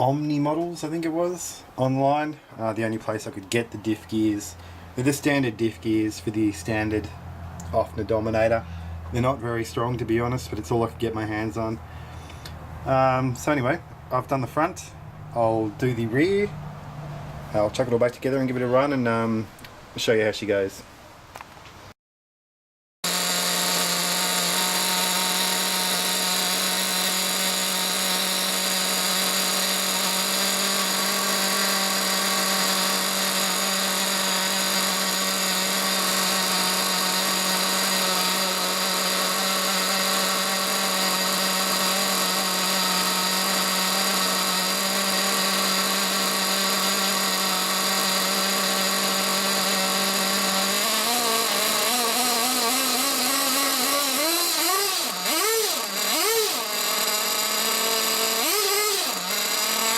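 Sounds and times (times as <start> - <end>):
nitro engine running: 23.0 - 59.9.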